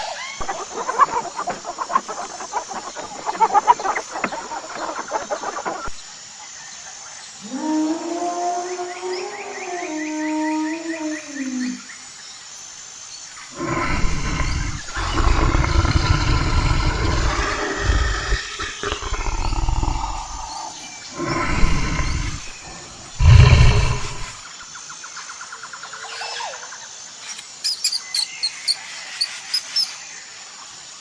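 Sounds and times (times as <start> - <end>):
large animal roaring: 13.5 - 24.4.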